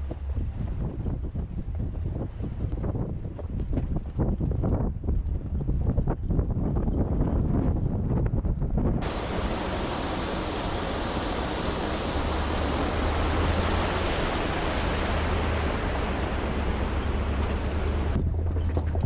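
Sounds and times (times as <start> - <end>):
low hum: 0.0 - 19.0
rushing water: 9.0 - 18.2.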